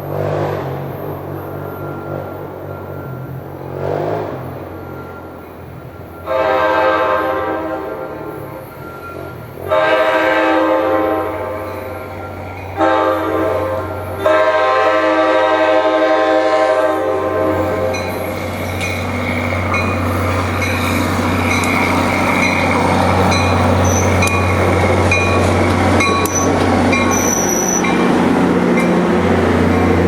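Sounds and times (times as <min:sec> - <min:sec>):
train air horn blasts: 0:06.2 - 0:08.6, 0:09.6 - 0:11.8, 0:12.7 - 0:18.1.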